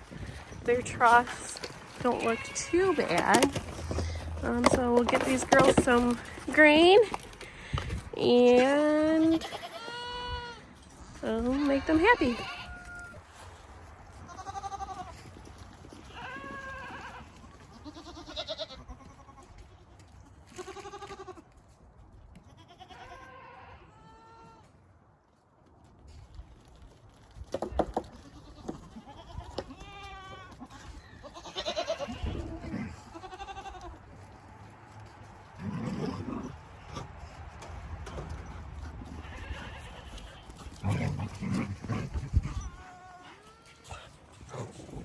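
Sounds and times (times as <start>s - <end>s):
goats bleating: 2.0s - 4.3s, 9.2s - 10.7s, 14.3s - 21.4s, 22.4s - 24.7s, 28.1s - 34.3s, 38.1s - 44.6s.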